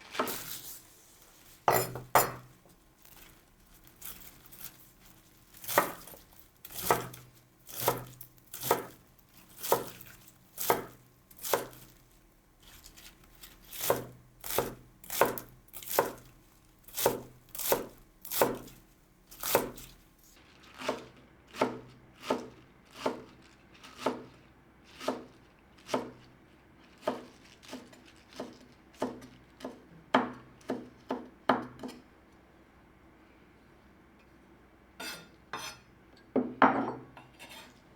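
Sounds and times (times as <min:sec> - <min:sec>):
knife chopping on cutting board: 0:01.7 - 0:02.5, 0:05.6 - 0:09.0, 0:09.6 - 0:11.8, 0:13.7 - 0:16.3, 0:17.0 - 0:18.7, 0:19.4 - 0:19.9.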